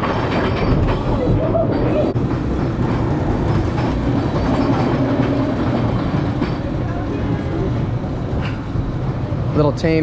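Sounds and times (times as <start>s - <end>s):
roller coaster cars clattering: 0.0s - 10.0s.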